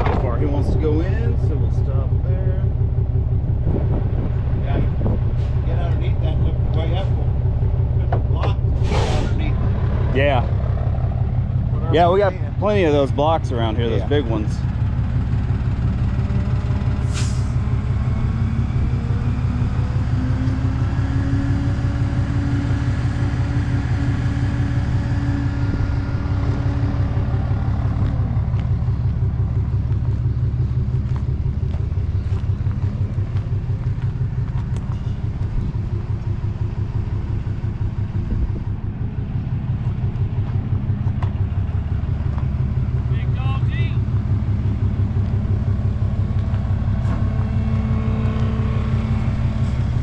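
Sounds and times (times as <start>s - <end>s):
diesel truck engine running: 0.0s - 50.0s
air hiss: 17.1s - 17.6s.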